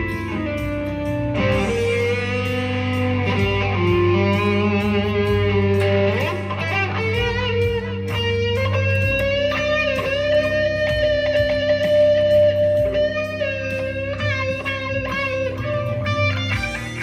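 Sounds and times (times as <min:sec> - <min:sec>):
electric guitar with wah: 0:00.0 - 0:17.0.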